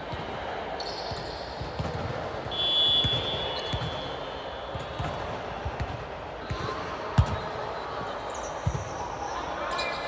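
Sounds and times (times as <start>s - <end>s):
whistle blown: 2.5s - 4.5s.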